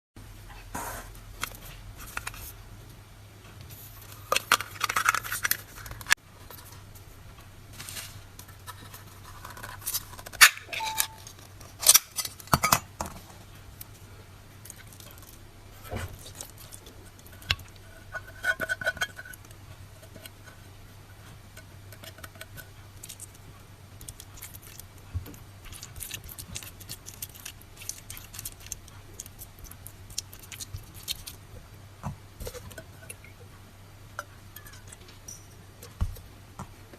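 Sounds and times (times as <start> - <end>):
utensils clinking on cans and dishes: 10.4 - 11.3.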